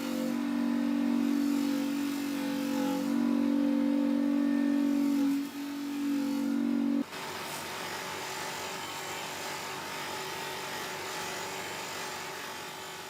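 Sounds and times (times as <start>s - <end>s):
power tool motor humming: 0.0s - 7.0s
scratchy abrasive scouring: 0.0s - 7.0s.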